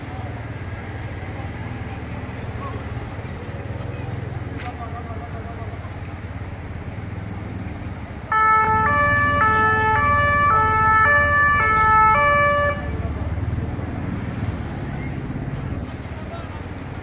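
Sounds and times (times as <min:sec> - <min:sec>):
vehicle traffic rumble: 0:00.0 - 0:17.0
two-tone emergency siren: 0:08.3 - 0:13.0.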